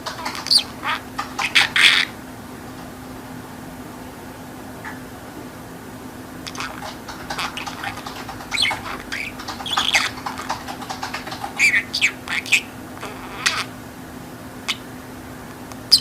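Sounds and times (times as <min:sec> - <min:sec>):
budgerigar chattering: 0:00.0 - 0:02.2, 0:06.4 - 0:13.8, 0:14.7 - 0:14.9.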